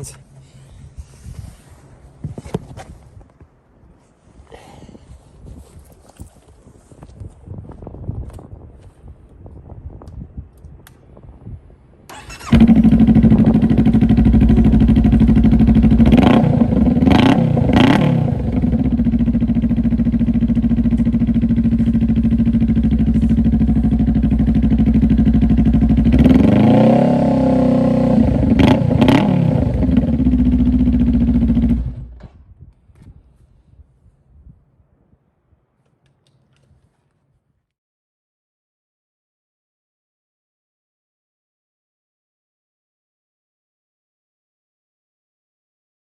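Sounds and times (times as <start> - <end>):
motorcycle engine idling and revving: 12.1 - 32.2.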